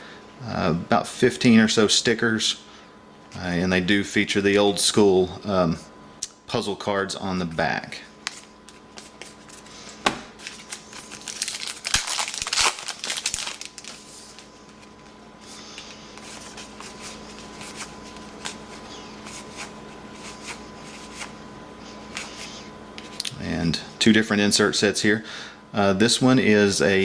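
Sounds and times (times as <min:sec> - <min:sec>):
card pack wrapper crinkling: 0:08.2 - 0:15.2.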